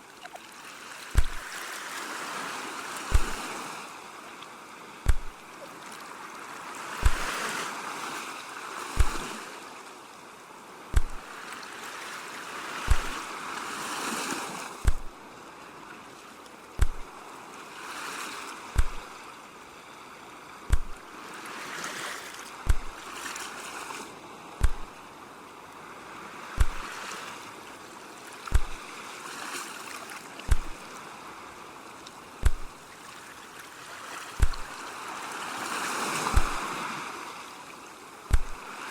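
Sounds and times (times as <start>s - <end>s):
ocean surf washing: 0.0s - 38.9s
deep even thump: 1.2s - 1.4s, 3.1s - 3.4s, 5.1s - 5.4s, 7.0s - 7.3s, 9.0s - 9.2s, 10.9s - 11.3s, 12.9s - 13.2s, 14.8s - 15.1s, 16.8s - 17.1s, 18.8s - 19.1s, 20.7s - 21.0s, 22.6s - 23.0s, 24.6s - 25.0s, 26.6s - 26.8s, 28.5s - 28.8s, 30.5s - 30.8s, 32.4s - 32.8s, 34.4s - 34.7s, 36.3s - 36.6s, 38.3s - 38.6s.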